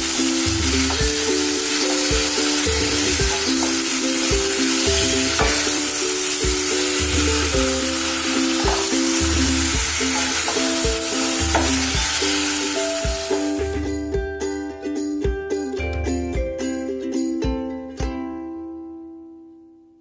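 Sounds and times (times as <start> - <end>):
chicken sizzling in oil: 0.0 - 14.0
background music with bass: 0.0 - 19.4.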